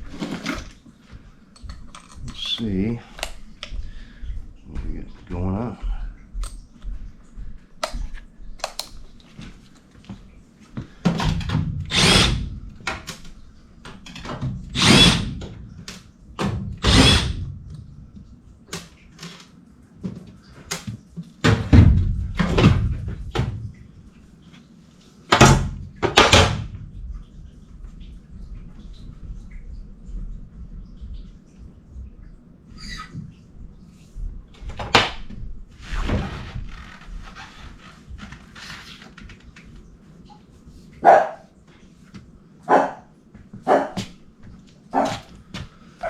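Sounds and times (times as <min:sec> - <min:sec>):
cordless driver spinning out screws: 0:11.9 - 0:12.4, 0:14.8 - 0:15.3, 0:16.8 - 0:17.4.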